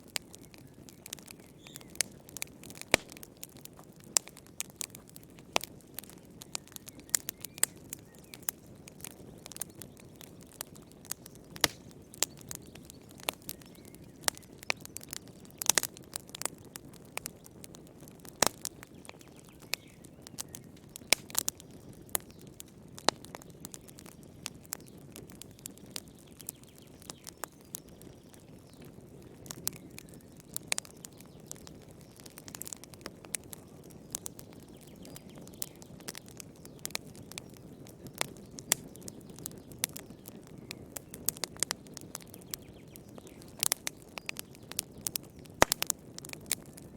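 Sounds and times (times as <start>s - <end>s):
low rumble of flame: 0.0s - 46.9s
wood fire crackling and popping: 0.0s - 46.9s.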